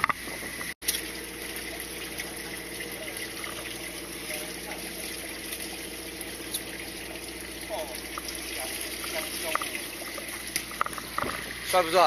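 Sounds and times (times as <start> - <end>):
low steady hum: 0.0 - 12.0
water running: 0.0 - 12.0.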